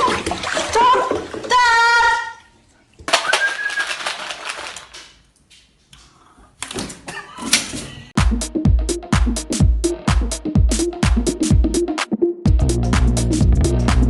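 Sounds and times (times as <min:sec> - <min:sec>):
music with heavy beat: 0:08.2 - 0:14.0.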